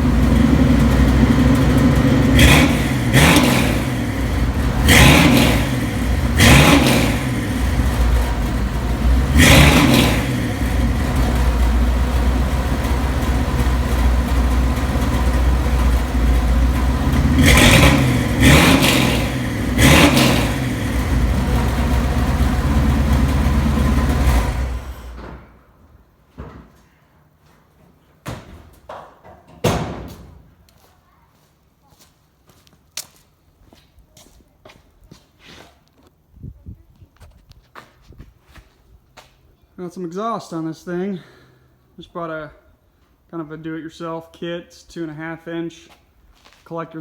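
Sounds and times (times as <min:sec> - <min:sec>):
car engine idling and revving: 0:00.0 - 0:25.5.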